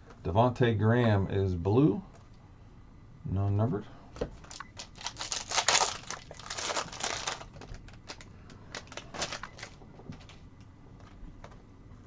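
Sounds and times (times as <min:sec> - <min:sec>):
card pack wrapper crinkling: 0:04.4 - 0:09.8.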